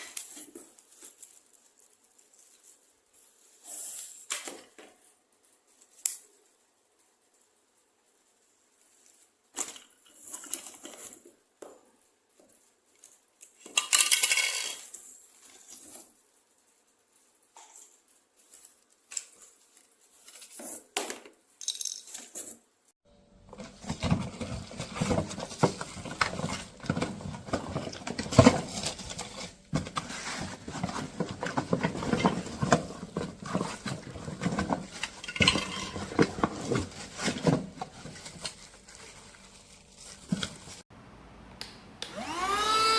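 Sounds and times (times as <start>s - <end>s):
vacuum cleaner motor running: 42.0s - 42.9s.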